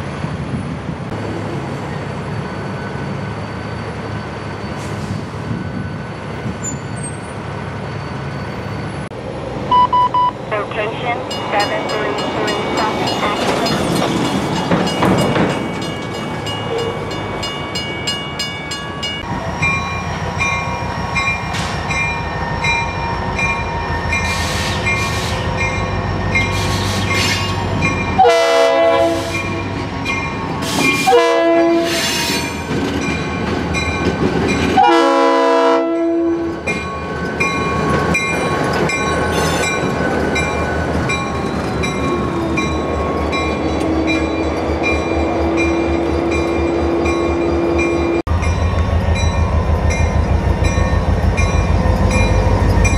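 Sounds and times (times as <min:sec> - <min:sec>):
diesel locomotive engine rumble: 0:00.0 - 0:52.9
locomotive bell ringing: 0:10.5 - 0:28.4, 0:29.3 - 0:34.8, 0:35.9 - 0:52.9
locomotive horn blasts: 0:10.8 - 0:13.4, 0:28.2 - 0:29.5, 0:31.0 - 0:32.0, 0:34.8 - 0:36.5.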